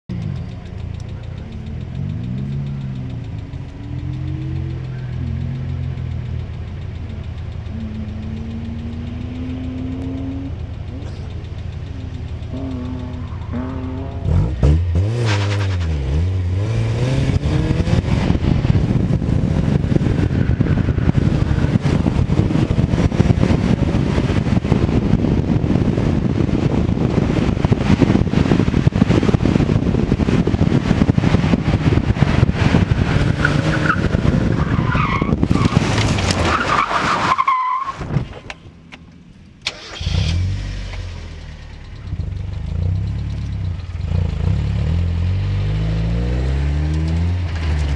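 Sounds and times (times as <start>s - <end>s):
car engine idling: 0.1s - 45.7s
car engine revving: 0.1s - 47.9s
tires squealing: 12.1s - 16.2s, 30.8s - 38.5s.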